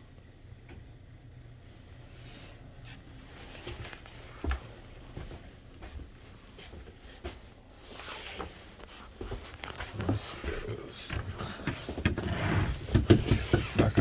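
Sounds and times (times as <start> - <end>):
footsteps: 2.4 - 12.1.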